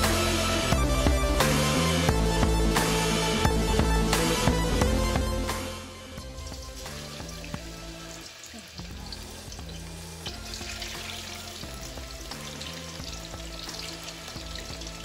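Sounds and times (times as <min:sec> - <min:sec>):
background music: 0:00.0 - 0:15.0
food sizzling in hot oil: 0:06.2 - 0:15.0.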